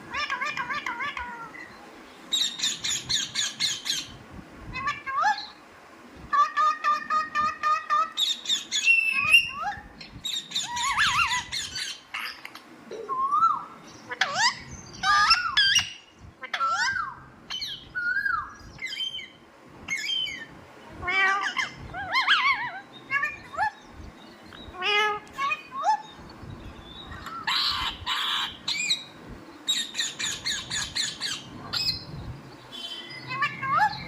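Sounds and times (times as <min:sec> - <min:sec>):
parrot squawking and whistling: 0:06.4 - 0:12.4, 0:13.1 - 0:19.3.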